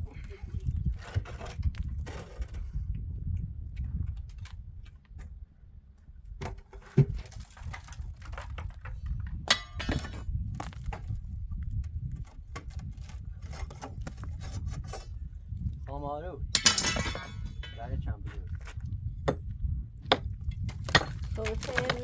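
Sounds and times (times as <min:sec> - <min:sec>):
hard objects knocking and clinking: 0:16.6 - 0:17.9, 0:19.2 - 0:22.0
clattering: 0:16.6 - 0:18.0.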